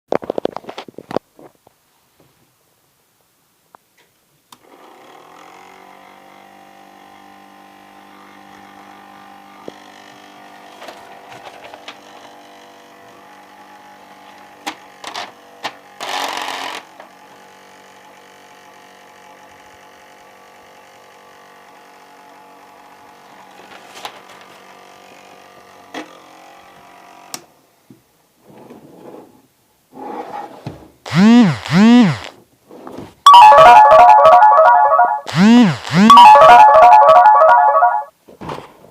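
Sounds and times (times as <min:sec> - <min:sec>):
small fan motor whirring: 0:31.1 - 0:32.3, 0:35.3 - 0:36.1.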